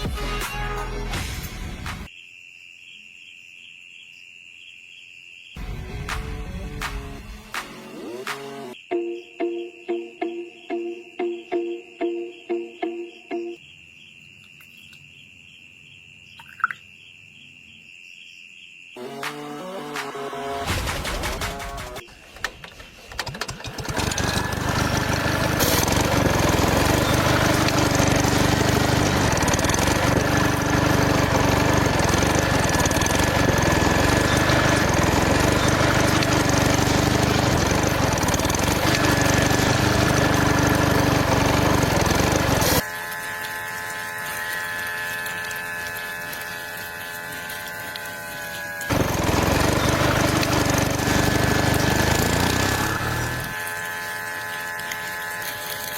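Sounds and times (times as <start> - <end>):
small motor running: 23.6 - 55.9.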